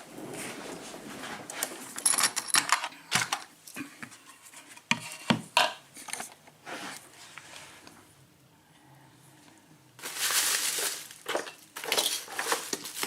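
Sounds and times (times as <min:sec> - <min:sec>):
tools clicking and rattling: 0:02.0 - 0:03.5.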